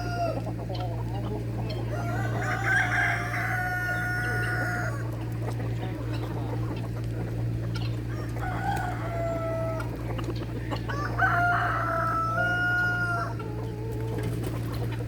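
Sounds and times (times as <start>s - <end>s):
rooster crowing: 0.0s - 0.4s, 1.9s - 5.1s, 8.1s - 10.0s, 10.9s - 14.1s
steady low hum: 0.0s - 15.0s.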